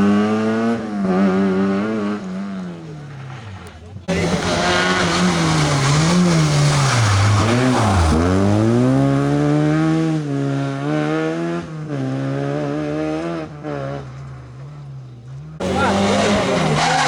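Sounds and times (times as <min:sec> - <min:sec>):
rally car engine accelerating: 0:00.0 - 0:17.0
tyres sliding: 0:03.1 - 0:09.4, 0:15.6 - 0:17.0.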